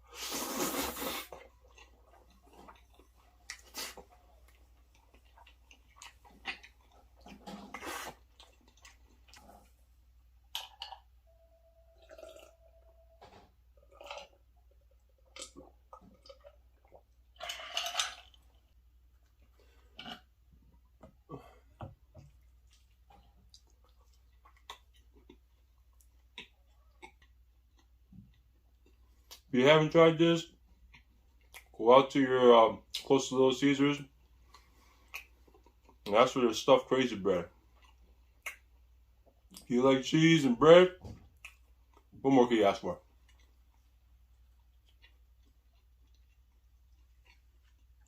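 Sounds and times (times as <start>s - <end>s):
slurping: 0.0s - 9.8s, 12.0s - 12.6s
wet chewing and lip-smacking: 0.5s - 9.9s, 13.8s - 21.1s, 22.1s - 29.5s, 30.7s - 31.8s, 34.2s - 36.1s, 37.6s - 39.7s, 41.3s - 42.1s, 43.1s - 48.0s.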